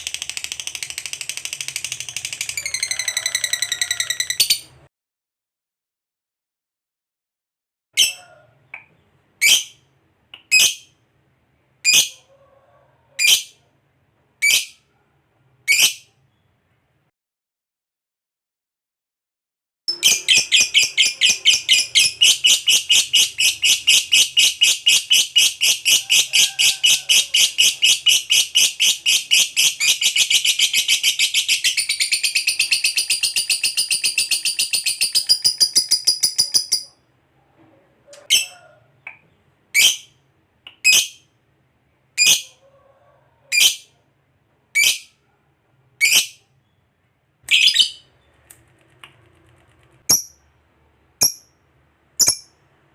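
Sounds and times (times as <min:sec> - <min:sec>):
lovebird chattering trill: 0:19.9 - 0:36.9.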